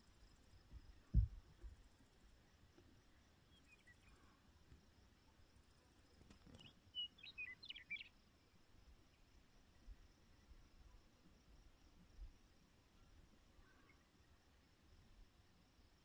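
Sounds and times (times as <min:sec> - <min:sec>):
faint outdoor background noise: 0:00.0 - 0:16.0
low thump: 0:00.7 - 0:01.8
small bird chirping: 0:06.1 - 0:08.2.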